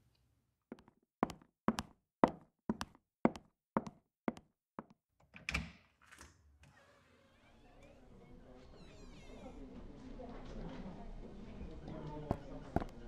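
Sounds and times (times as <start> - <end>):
footsteps walking: 0.7 - 4.9.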